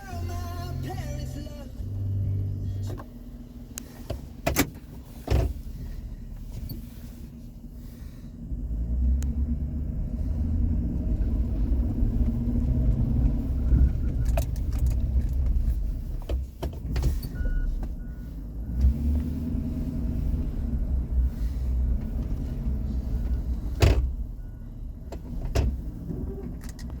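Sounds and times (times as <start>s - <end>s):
truck engine revving: 8.4s - 15.9s, 18.0s - 24.4s.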